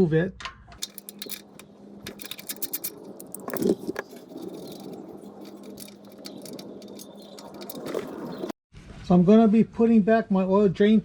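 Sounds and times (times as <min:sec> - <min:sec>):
drain plug clattering: 0:00.8 - 0:08.5
ratchet clicking: 0:00.8 - 0:08.5.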